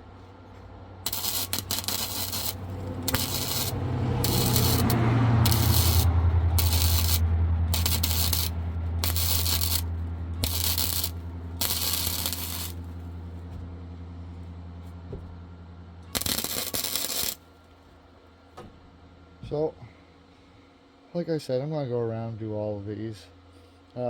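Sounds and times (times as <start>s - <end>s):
welding arc crackling: 1.0s - 12.9s, 16.1s - 17.4s
welder low hum: 1.0s - 13.0s, 16.1s - 17.4s.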